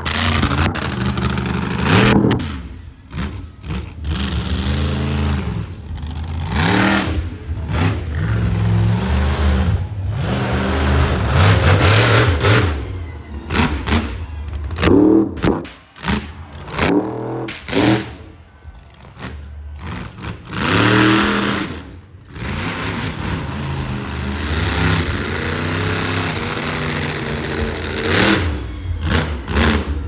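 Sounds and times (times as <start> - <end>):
monster truck engine revving: 0.0 - 30.0
sharp cracks: 10.2 - 18.4.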